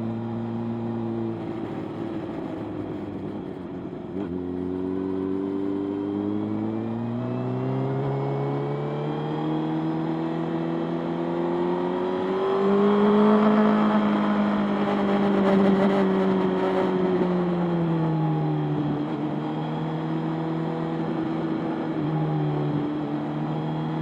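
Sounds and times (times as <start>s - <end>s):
motorcycle engine accelerating: 4.2s - 24.0s.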